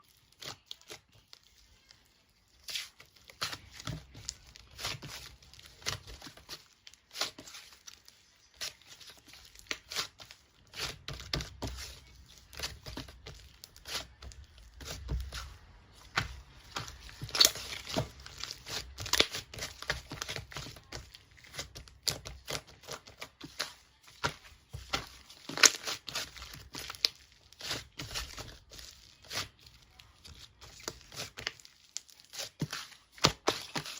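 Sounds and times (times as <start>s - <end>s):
material crinkling and tearing: 0.0s - 33.9s.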